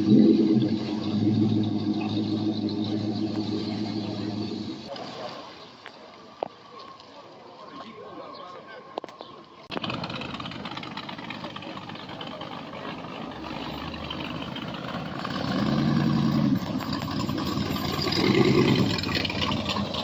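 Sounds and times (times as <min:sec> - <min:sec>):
car engine idling: 0:00.0 - 0:04.9, 0:09.7 - 0:20.0.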